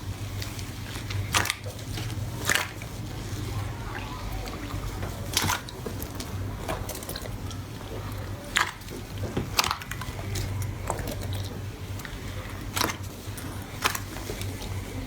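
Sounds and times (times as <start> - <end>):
low steady hum: 0.0 - 15.0
slime squished by hand: 0.1 - 15.0.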